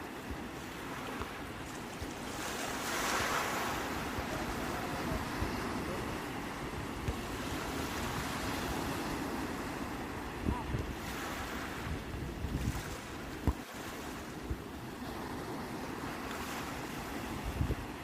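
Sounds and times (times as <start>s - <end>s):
sea waves washing on shore: 0.0s - 18.0s
wind rumble on microphone: 0.0s - 18.0s.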